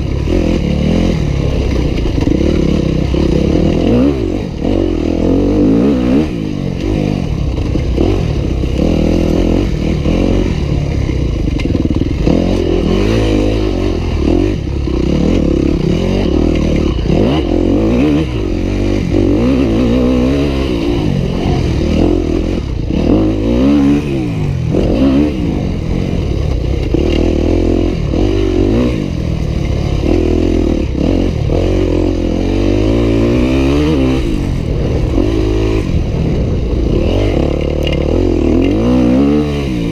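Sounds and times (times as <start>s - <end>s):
dirt bike engine ridden hard: 0.0s - 39.9s.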